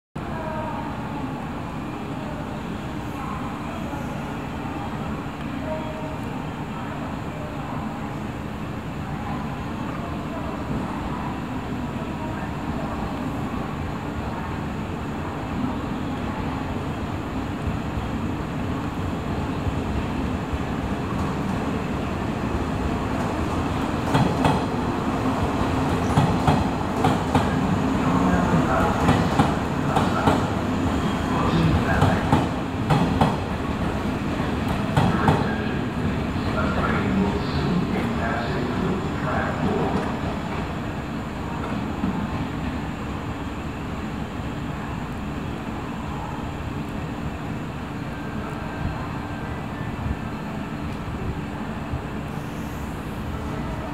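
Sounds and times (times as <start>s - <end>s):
train rumbling: 10.4s - 53.9s
train wheels clacking over track: 24.0s - 24.7s, 25.8s - 27.7s, 31.8s - 34.0s, 34.6s - 35.5s.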